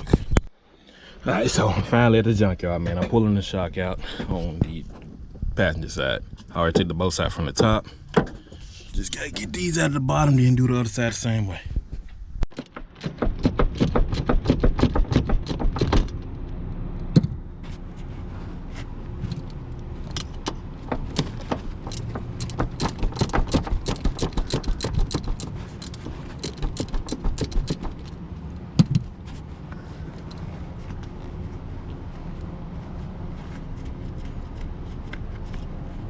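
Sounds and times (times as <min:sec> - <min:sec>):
metal rattling: 0:19.3 - 0:28.2
hand ratchet clicking: 0:21.1 - 0:28.2.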